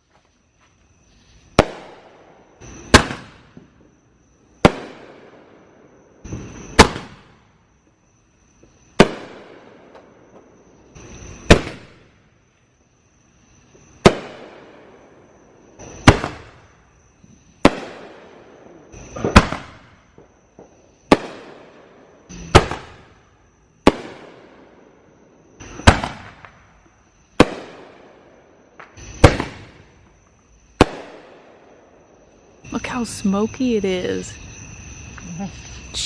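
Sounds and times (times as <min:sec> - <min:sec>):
fireworks bangs with crackle: 0:01.4 - 0:07.7, 0:08.5 - 0:12.3, 0:13.8 - 0:25.0, 0:25.6 - 0:32.1.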